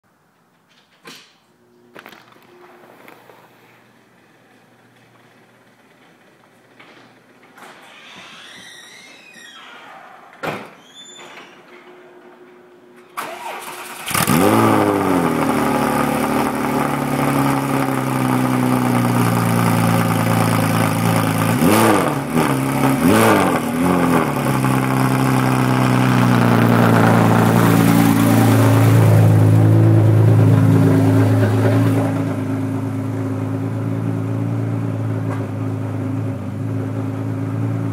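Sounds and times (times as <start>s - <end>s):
garage door: 0.2s - 13.2s
car engine cranking and starting: 13.1s - 37.9s
car engine idling: 13.2s - 37.9s
engine throttle blips: 13.2s - 37.9s.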